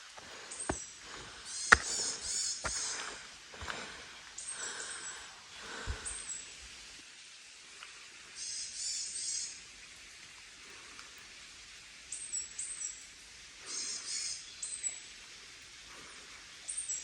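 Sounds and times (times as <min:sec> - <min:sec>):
faint steady hiss: 0:00.0 - 0:17.0
birds warbling chirps: 0:00.3 - 0:03.2, 0:13.6 - 0:15.1
soft thuds: 0:01.7 - 0:03.0.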